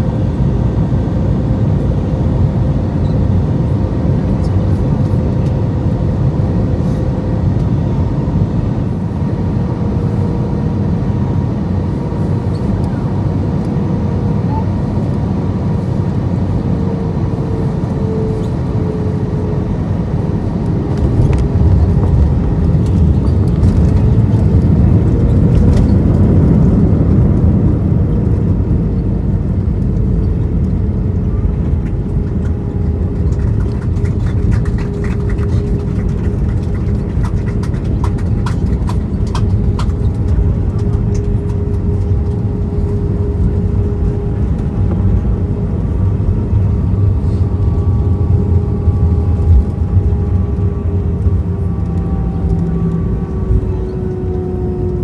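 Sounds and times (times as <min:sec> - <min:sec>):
jet engines rumbling with whine: 0:00.0 - 0:55.0.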